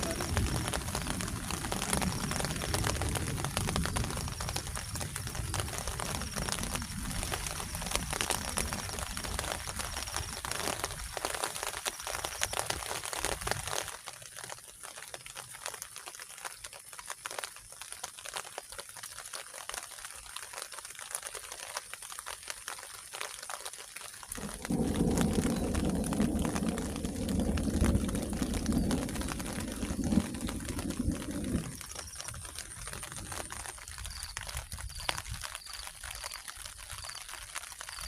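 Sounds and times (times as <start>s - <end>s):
steady rain falling: 0.0s - 38.0s
low rumble: 24.4s - 31.9s.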